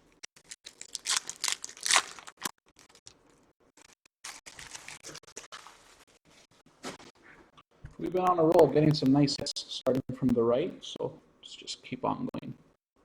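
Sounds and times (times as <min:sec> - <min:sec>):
foil wrapper tearing and crinkling: 0:00.3 - 0:06.2.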